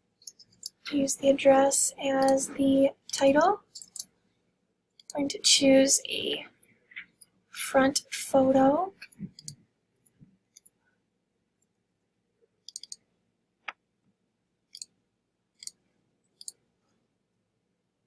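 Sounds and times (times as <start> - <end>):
computer mouse clicks: 3.1 - 4.1, 5.0 - 5.2, 9.0 - 9.6, 12.6 - 13.8, 14.7 - 15.0, 15.6 - 15.8, 16.4 - 16.6.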